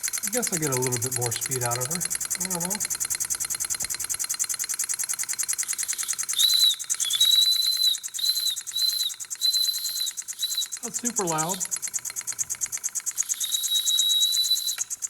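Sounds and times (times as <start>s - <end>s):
model steam engine chuffing: 0.0s - 15.0s
steam whistle toots: 6.0s - 11.6s, 13.3s - 14.8s.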